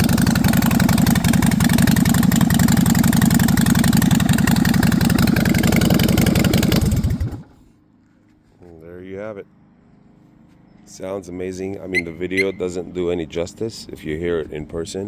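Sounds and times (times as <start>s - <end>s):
motorcycle engine idling: 0.0s - 7.7s.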